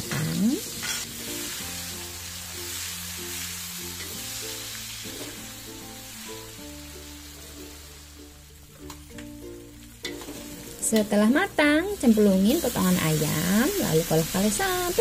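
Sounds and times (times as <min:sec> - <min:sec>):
background music of held chords: 0:00.0 - 0:15.0
spice paste sizzling in hot oil: 0:00.0 - 0:15.0
metal spatula stirring in wok: 0:00.7 - 0:01.6, 0:10.0 - 0:10.8.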